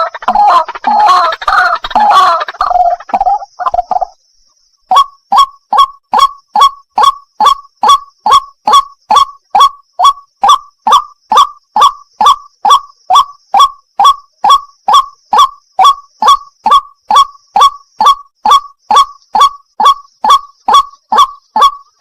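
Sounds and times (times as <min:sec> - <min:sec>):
waterhen calling wak notes: 0:00.0 - 0:04.2, 0:04.8 - 0:22.0.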